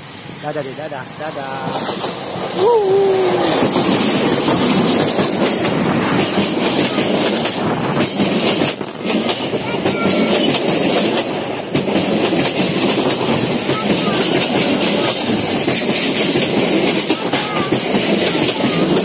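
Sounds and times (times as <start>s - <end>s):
train wheels rumbling on rail: 0.0s - 19.0s
wheels clacking over rail joints: 1.4s - 19.0s.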